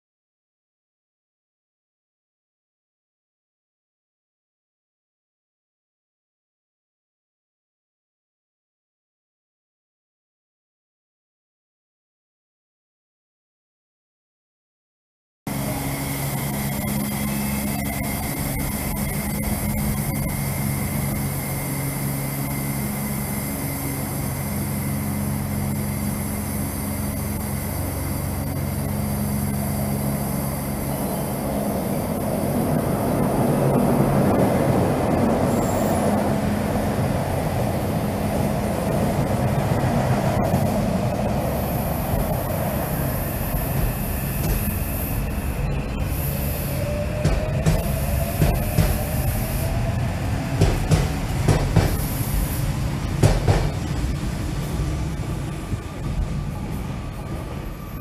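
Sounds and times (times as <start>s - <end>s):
train carriages rumbling by: 15.5s - 58.0s
train engine hum: 15.5s - 58.0s.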